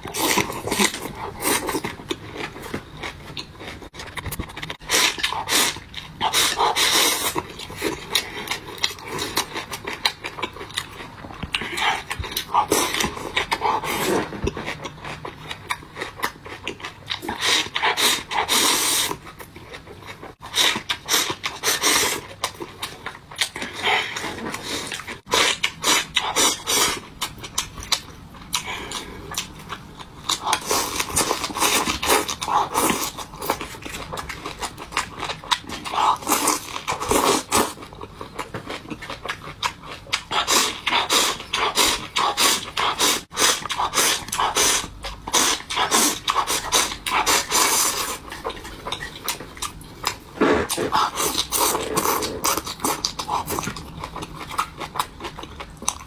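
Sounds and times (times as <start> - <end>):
chewing and crunching food: 0.0 - 56.0
slurping: 40.3 - 53.7.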